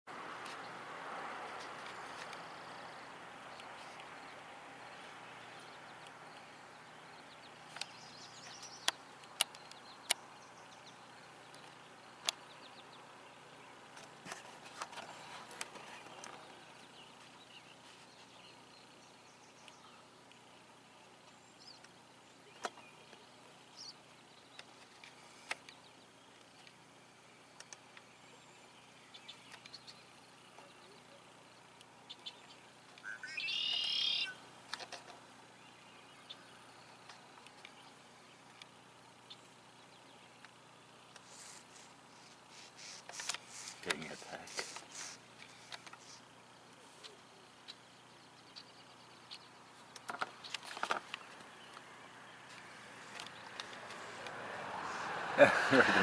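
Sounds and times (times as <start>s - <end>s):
faint high chirps: 32.0s - 34.4s.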